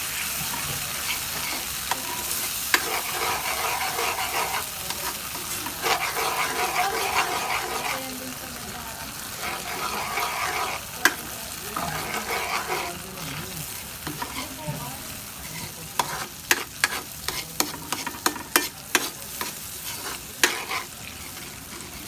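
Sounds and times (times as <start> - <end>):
chicken sizzling in oil: 0.0 - 22.0
utensil tapping pan: 0.4 - 8.1, 9.4 - 13.4, 15.6 - 20.9.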